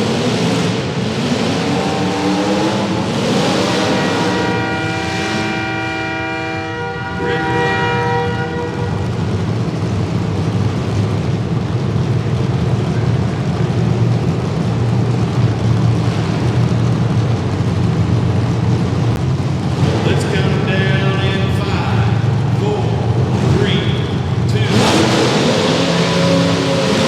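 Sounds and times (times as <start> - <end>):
car engines running: 0.0 - 27.0
air horn blast: 1.4 - 9.4, 24.0 - 27.0.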